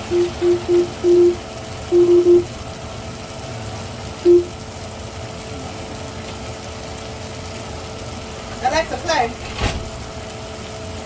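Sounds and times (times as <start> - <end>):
keypad beeps: 0.0 - 2.5, 4.3 - 4.5
steady hum: 0.0 - 9.3.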